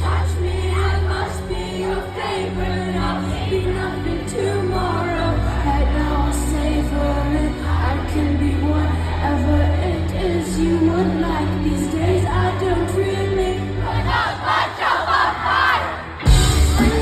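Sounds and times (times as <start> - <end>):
heavy bass line: 16.2 - 17.0
live band playing: 16.2 - 17.0.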